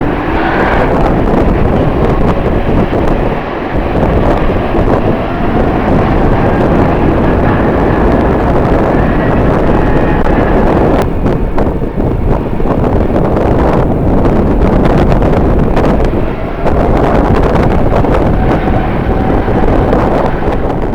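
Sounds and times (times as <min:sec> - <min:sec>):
strong wind on microphone: 0:00.0 - 0:20.9.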